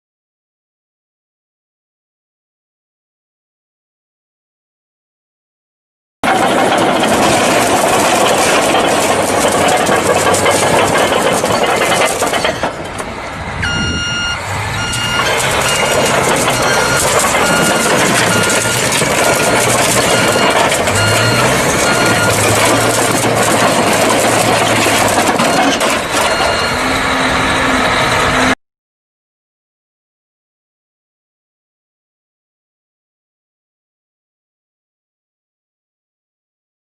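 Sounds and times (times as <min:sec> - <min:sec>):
engine and road noise: 0:06.2 - 0:28.6
vehicle warning beeper: 0:13.6 - 0:24.9, 0:25.5 - 0:28.1.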